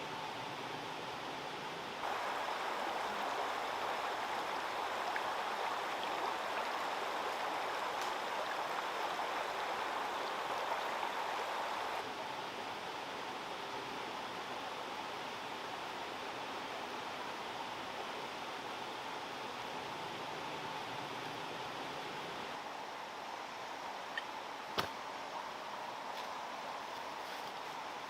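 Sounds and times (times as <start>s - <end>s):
running water rushing: 1.9s - 12.1s.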